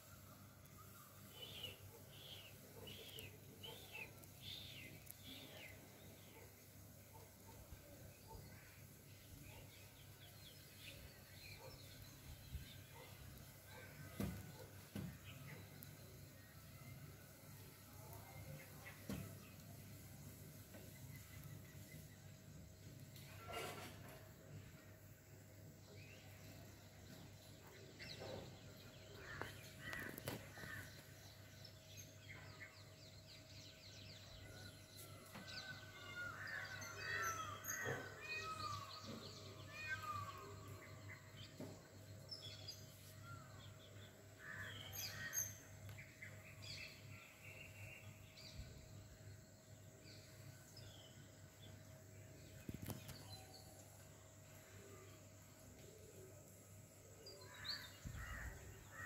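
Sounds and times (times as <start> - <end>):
birds chirping and calling: 44.4 - 47.5.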